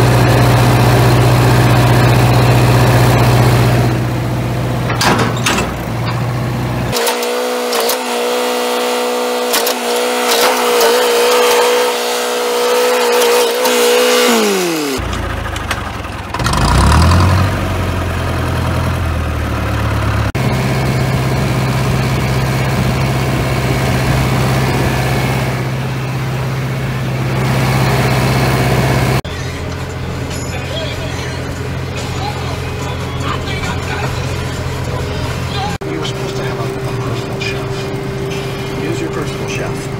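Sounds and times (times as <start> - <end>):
vehicle engine running: 0.0 - 39.9
higher steady drone: 20.4 - 39.9.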